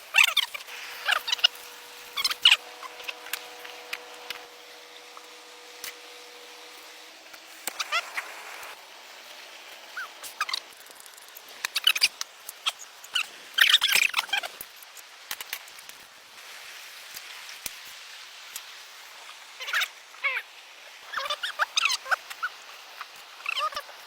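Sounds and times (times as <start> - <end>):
high chirping animal calls: 0.1 - 7.0, 7.6 - 8.8.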